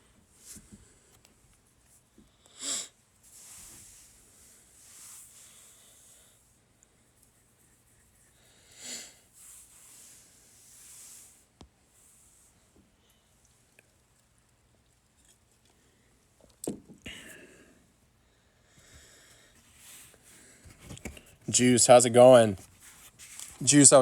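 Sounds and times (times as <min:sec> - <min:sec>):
man breathing through nose: 0:17.1 - 0:20.8.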